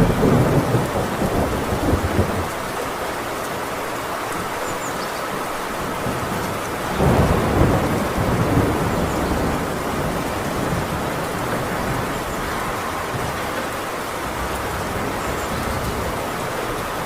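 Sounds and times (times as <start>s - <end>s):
low thunder rumble: 0.0s - 2.6s, 6.0s - 17.0s
heavy rain on a tin roof: 0.0s - 17.0s.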